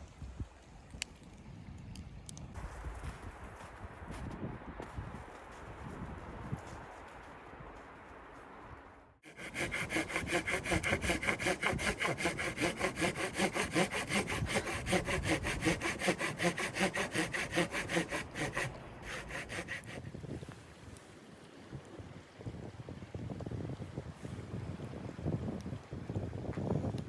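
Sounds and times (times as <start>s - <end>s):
hand saw cutting wood: 9.3s - 20.2s.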